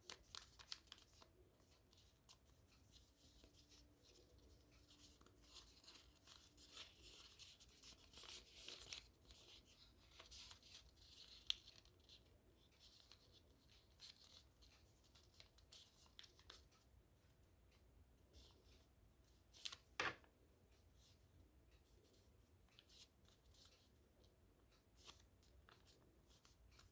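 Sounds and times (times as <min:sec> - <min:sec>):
paper tick: 0:00.0 - 0:12.3
paper crinkles: 0:00.0 - 0:16.6
paper rustling while folded: 0:00.0 - 0:16.8, 0:24.7 - 0:26.9.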